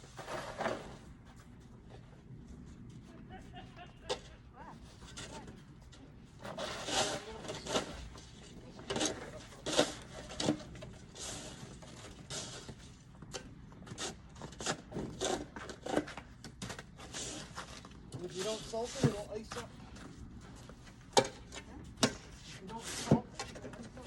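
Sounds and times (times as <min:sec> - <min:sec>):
snow shovel scraping on ice: 0:00.0 - 0:01.1, 0:06.4 - 0:12.8, 0:13.9 - 0:16.2, 0:17.0 - 0:19.6, 0:22.1 - 0:23.6.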